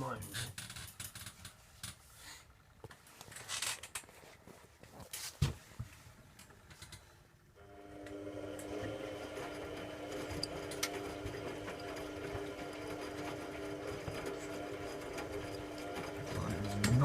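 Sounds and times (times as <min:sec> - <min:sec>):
washing machine motor humming: 0:07.6 - 0:17.0.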